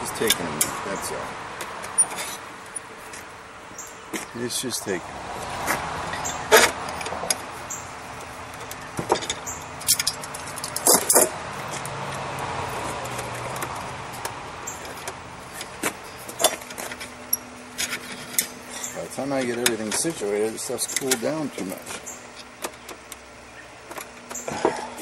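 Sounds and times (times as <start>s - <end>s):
tools clinking on steel: 6.1s - 12.2s, 12.8s - 23.0s.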